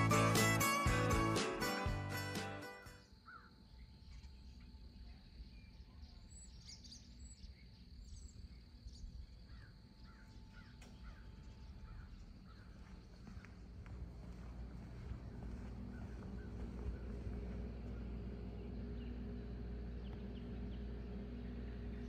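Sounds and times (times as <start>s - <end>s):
short bird calls and chirps: 3.2s - 12.8s
low background rumble: 4.6s - 22.0s.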